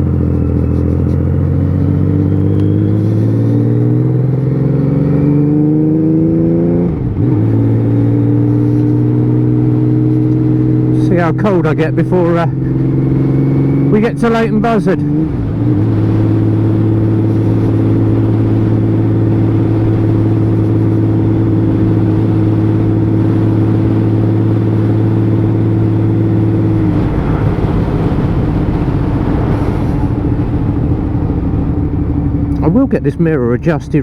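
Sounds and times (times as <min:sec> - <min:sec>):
motorcycle engine cruising: 0:00.0 - 0:34.0.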